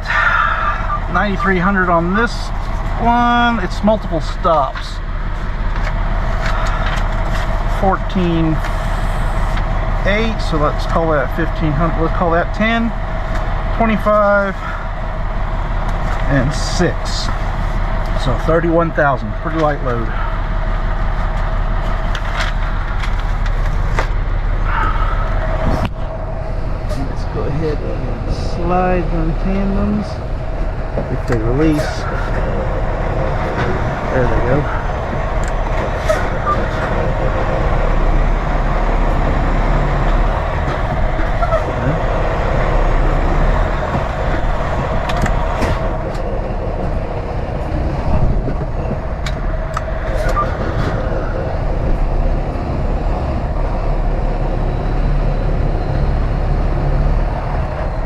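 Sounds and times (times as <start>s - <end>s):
diesel truck engine idling: 0.0s - 58.0s
sharp clicks and rattles: 21.1s - 24.2s, 29.5s - 54.2s.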